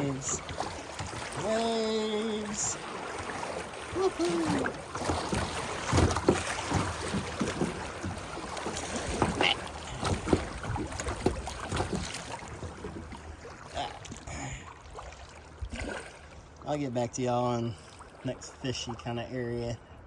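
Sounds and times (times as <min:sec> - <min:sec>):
rushing whitewater: 0:00.0 - 0:07.6
waves splashing against kayak hull: 0:00.0 - 0:20.0.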